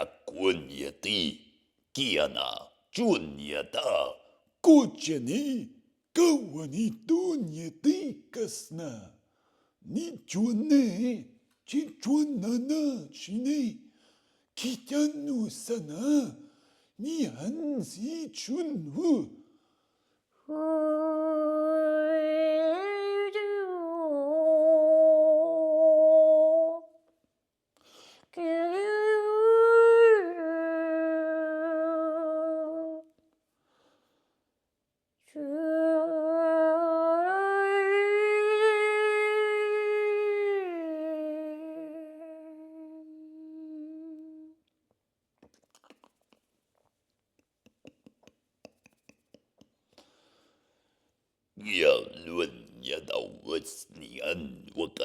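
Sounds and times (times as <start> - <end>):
person humming long tones: 41.0 - 44.6.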